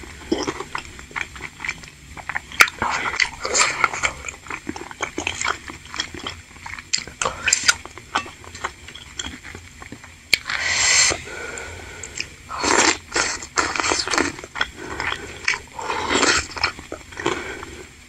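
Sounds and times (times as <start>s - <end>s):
biting and chewing: 0.0s - 18.0s
wet sucking sounds: 10.3s - 18.0s.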